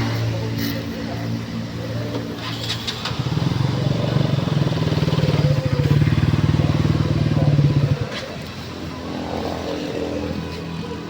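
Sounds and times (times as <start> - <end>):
motorcycle engine running: 2.3 - 8.9.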